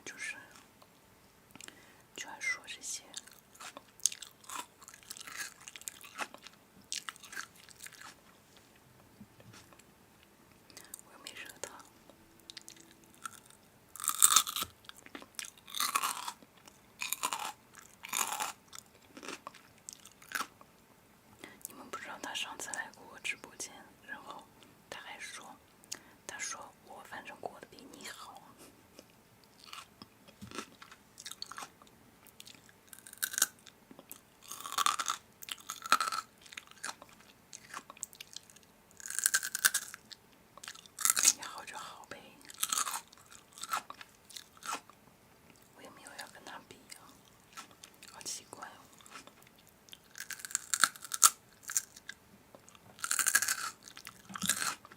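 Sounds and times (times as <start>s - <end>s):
person crunching crisp food: 3.2s - 8.2s, 12.5s - 20.5s, 29.5s - 31.7s, 32.3s - 41.4s, 42.5s - 44.9s, 48.9s - 54.9s
chewing clicks: 49.0s - 54.9s.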